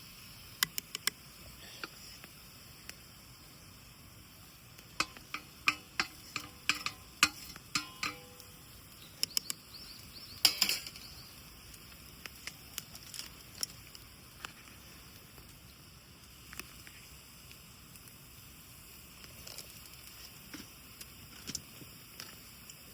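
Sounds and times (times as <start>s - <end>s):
metal cookware clinking: 5.0s - 8.4s, 10.4s - 11.1s.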